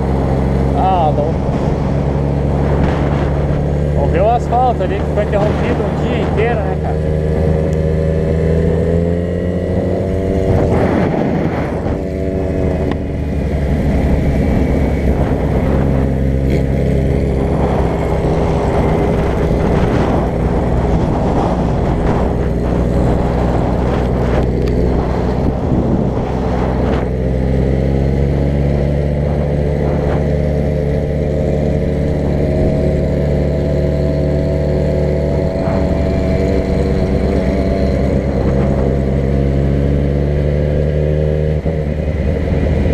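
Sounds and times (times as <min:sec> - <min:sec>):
road knocks and rattles: 0:00.0 - 0:42.9
vehicle engine running: 0:00.0 - 0:42.9.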